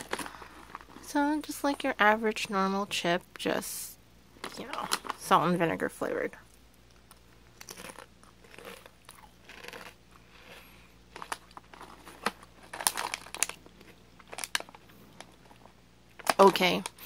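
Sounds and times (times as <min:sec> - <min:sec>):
potato chips crunching: 0:00.0 - 0:01.1, 0:06.8 - 0:17.0.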